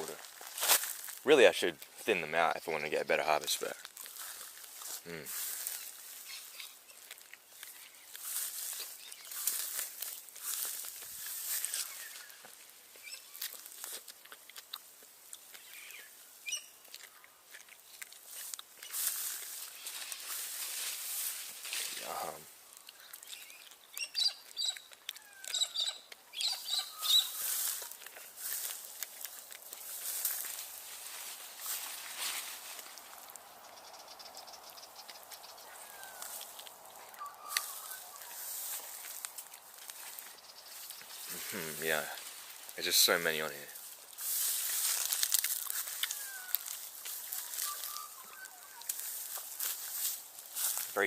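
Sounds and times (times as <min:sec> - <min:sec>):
dry plant material crackling: 0:00.0 - 0:51.0
bird chirp: 0:05.4 - 0:10.3, 0:11.5 - 0:13.6, 0:15.4 - 0:17.5, 0:22.2 - 0:28.0, 0:32.8 - 0:42.2, 0:46.1 - 0:49.2.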